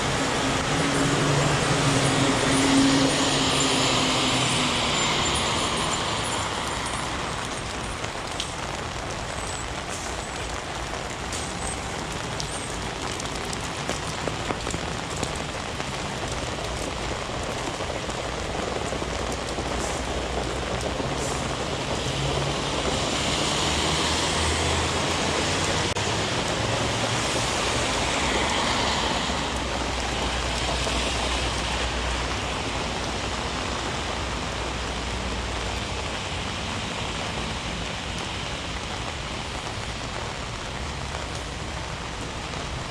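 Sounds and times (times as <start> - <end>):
heavy rain on a street: 0.0 - 42.9
vehicle passing: 21.3 - 30.1.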